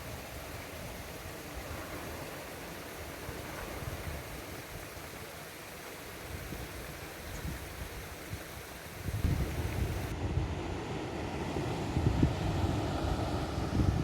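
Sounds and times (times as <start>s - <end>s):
ocean surf washing: 0.0s - 14.0s
wind buffeting microphone: 9.0s - 10.9s, 11.6s - 14.0s.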